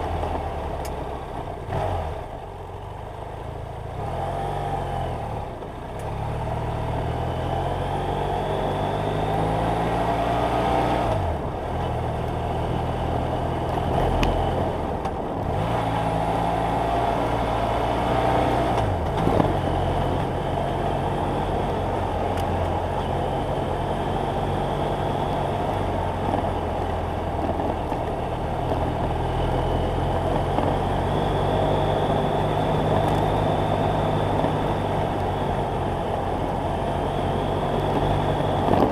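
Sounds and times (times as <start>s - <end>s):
motorcycle engine running: 18.8s - 38.9s.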